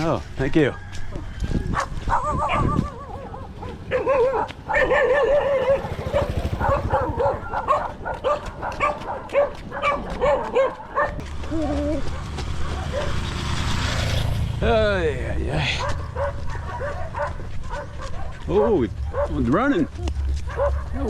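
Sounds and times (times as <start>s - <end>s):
dog whining and yipping: 1.7s - 8.4s.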